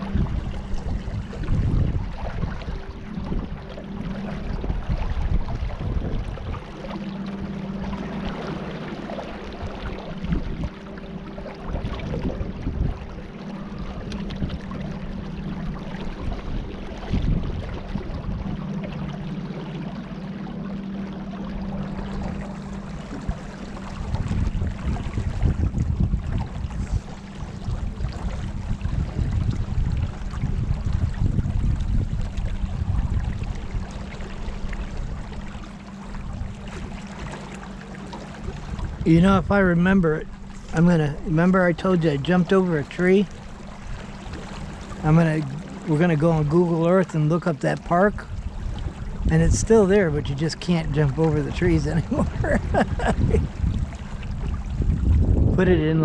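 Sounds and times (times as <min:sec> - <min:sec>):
wind noise: 0:00.0 - 0:07.2, 0:11.6 - 0:18.8, 0:21.8 - 0:35.6, 0:48.1 - 0:56.0
boat motor hum: 0:00.0 - 0:56.0
water splashing: 0:00.0 - 0:56.0.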